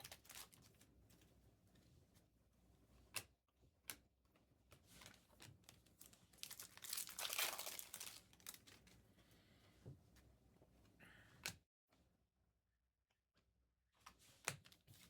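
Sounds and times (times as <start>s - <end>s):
foil wrapper crinkling: 0.0s - 0.7s, 6.0s - 8.8s.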